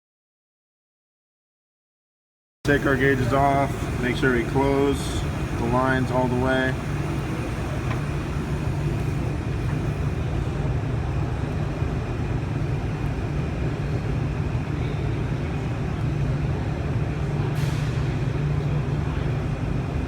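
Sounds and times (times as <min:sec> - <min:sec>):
car engine idling: 0:02.7 - 0:10.3.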